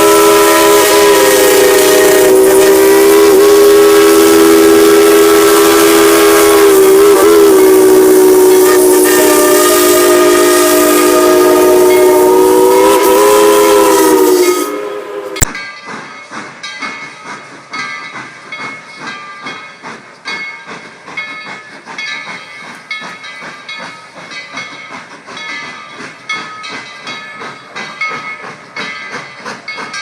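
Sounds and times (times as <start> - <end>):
steam locomotive whistle blast: 0.0 - 15.6.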